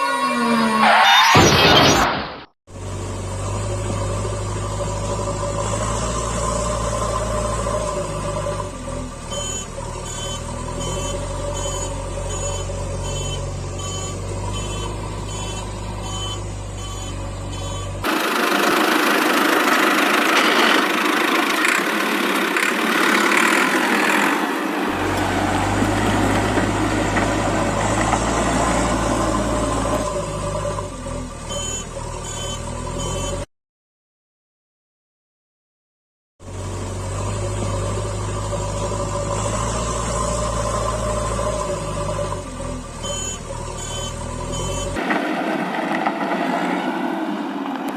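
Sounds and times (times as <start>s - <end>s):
vehicle engine hum: 2.7s - 33.5s, 36.4s - 47.9s
high beeps: 9.3s - 18.0s, 31.5s - 33.4s, 43.0s - 45.0s.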